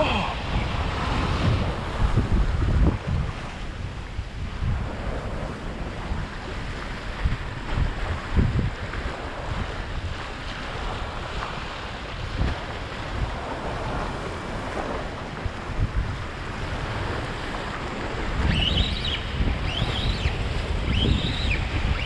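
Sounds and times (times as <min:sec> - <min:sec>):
surf washing on beach: 0:00.0 - 0:22.0
wind buffeting microphone: 0:00.0 - 0:22.0.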